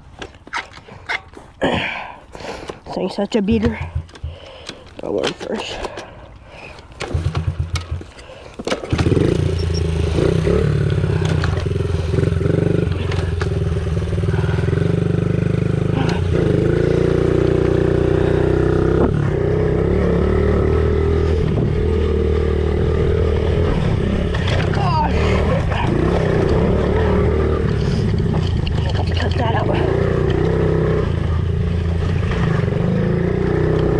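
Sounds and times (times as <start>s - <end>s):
small motorcycle engine running: 7.0s - 33.9s.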